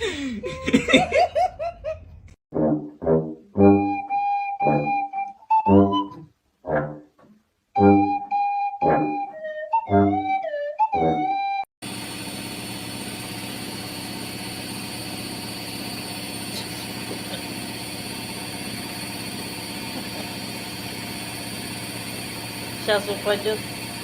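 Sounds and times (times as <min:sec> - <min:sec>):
flute music: 0:03.1 - 0:07.0, 0:07.7 - 0:11.7
steady mechanical hum: 0:11.8 - 0:24.0.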